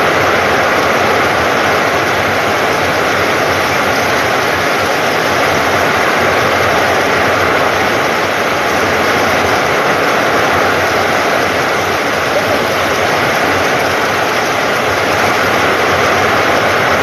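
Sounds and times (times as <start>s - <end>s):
heavy rain on a metal roof: 0.0s - 17.0s.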